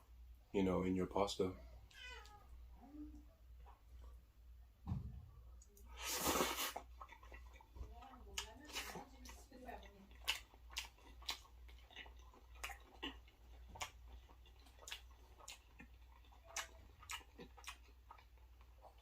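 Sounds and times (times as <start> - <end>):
person chewing wet mouth clicks: 6.4 - 7.7, 10.1 - 19.0.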